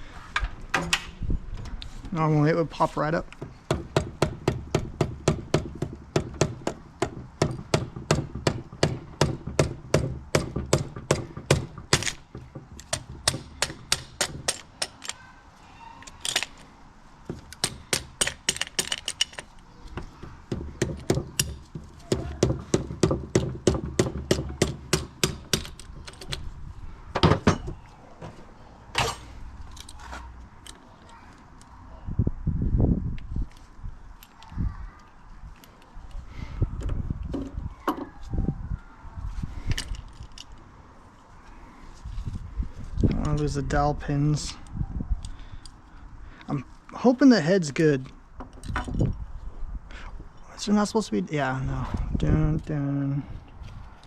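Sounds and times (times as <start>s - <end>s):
sharp metal knocks: 3.4s - 15.1s, 20.0s - 26.3s.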